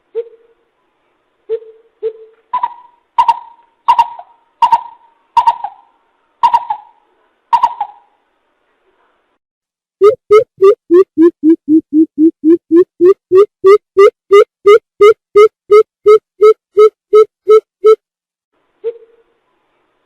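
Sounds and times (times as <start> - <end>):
bird hooting: 1.5 - 7.0, 7.6 - 8.1.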